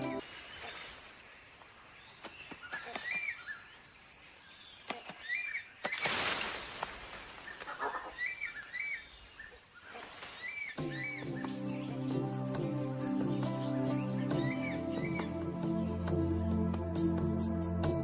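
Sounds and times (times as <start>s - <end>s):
bird chirping: 7.4s - 18.0s.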